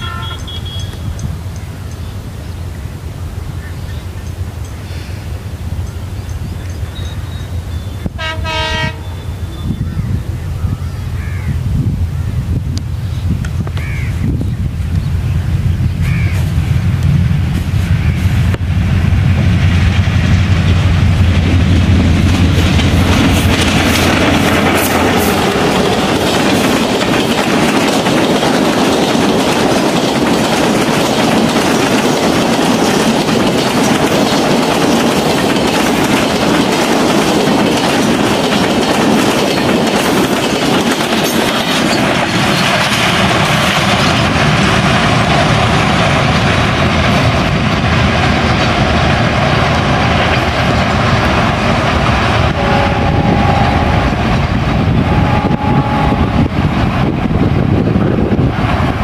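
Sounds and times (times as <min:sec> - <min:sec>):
train wheels clattering: 0:14.8 - 0:59.0
low steady rumble: 0:52.4 - 0:58.5.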